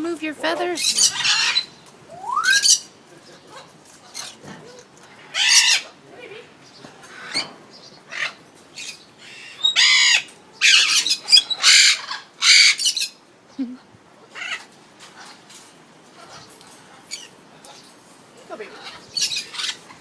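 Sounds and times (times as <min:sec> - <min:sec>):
parrot chirping: 0:00.3 - 0:02.9, 0:08.1 - 0:13.2, 0:18.5 - 0:20.0
parrot squawking: 0:00.6 - 0:02.9, 0:05.3 - 0:06.0, 0:08.1 - 0:13.2, 0:14.3 - 0:14.7, 0:18.6 - 0:19.9.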